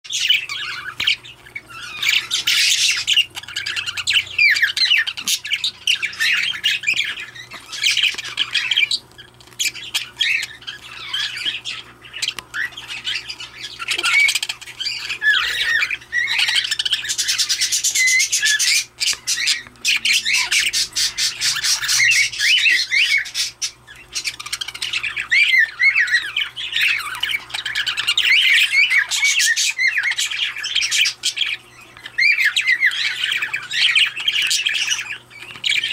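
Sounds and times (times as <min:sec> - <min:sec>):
budgerigar chattering and warbling: 0:00.1 - 0:35.9.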